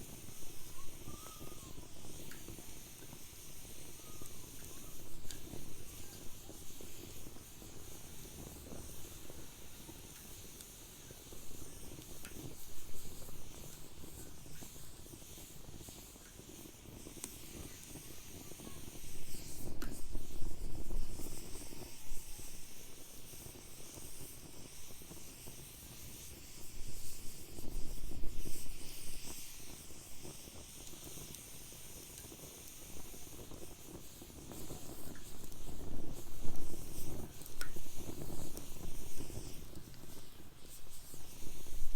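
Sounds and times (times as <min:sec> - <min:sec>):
wood fire crackling and hissing: 0:00.0 - 0:41.9.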